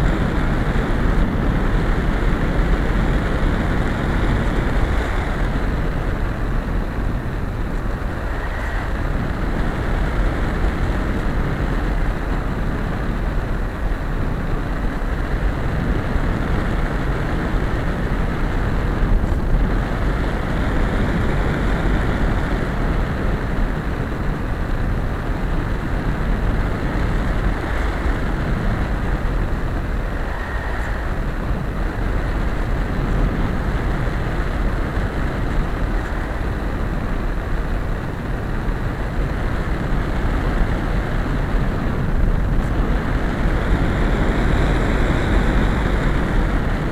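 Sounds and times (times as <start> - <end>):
airflow rushing over microphone: 0.0 - 46.9.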